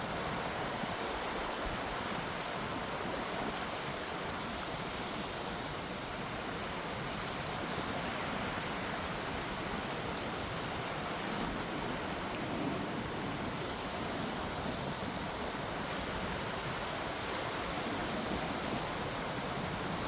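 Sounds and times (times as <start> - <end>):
gentle sea waves washing: 0.0 - 20.0.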